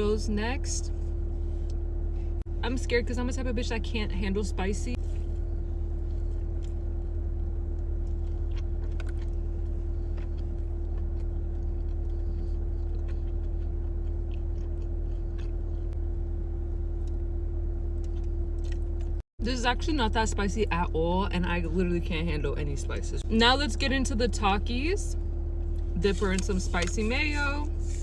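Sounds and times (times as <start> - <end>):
steady low hum: 0.0 - 28.0
crunchy chewing: 5.0 - 17.2, 17.9 - 19.2.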